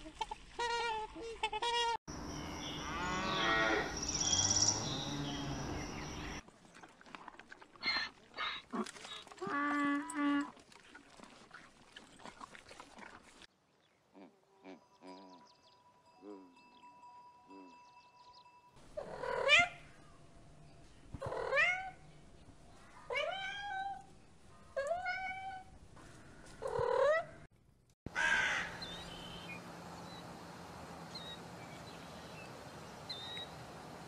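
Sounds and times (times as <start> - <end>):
steady outdoor hiss: 2.1 - 6.4, 28.1 - 34.0.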